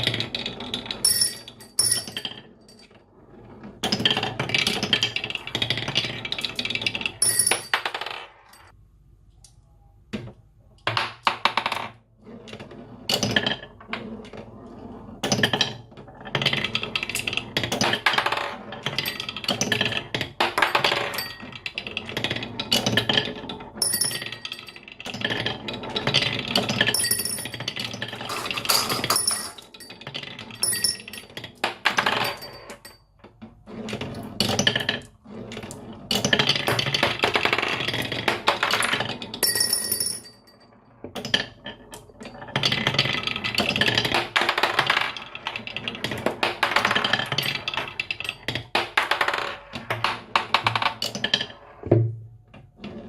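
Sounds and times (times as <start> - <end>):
marbles clattering down wooden run: 16.4 - 32.8.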